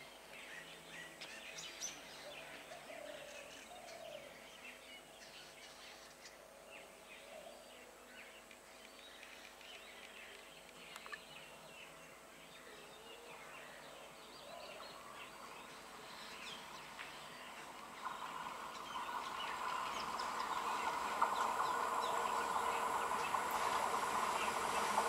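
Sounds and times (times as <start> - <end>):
steady background hiss: 0.0 - 25.0
birds chirping: 0.2 - 25.0.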